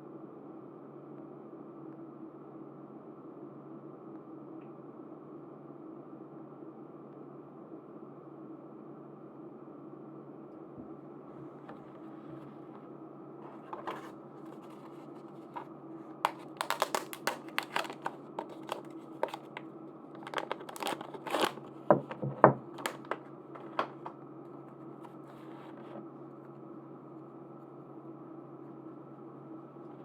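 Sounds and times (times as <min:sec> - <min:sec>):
faint steady hum: 0:00.0 - 0:30.0
packaging crinkling and tearing: 0:13.4 - 0:24.2.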